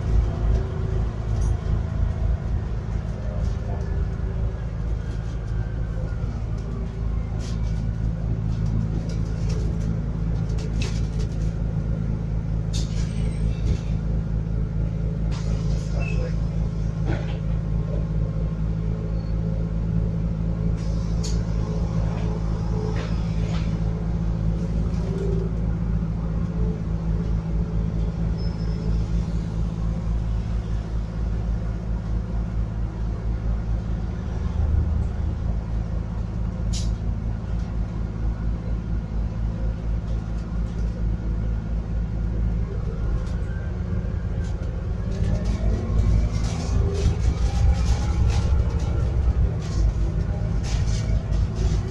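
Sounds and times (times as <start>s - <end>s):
bus engine rumble: 0.0s - 51.9s
bus body rattles: 8.4s - 14.3s, 15.1s - 18.0s, 45.0s - 51.9s.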